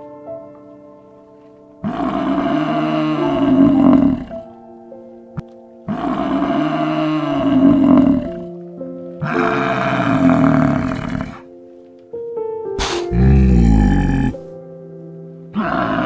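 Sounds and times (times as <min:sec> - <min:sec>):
background music with held notes: 0:00.0 - 0:16.0
harsh animal call: 0:12.8 - 0:14.5, 0:15.6 - 0:16.0.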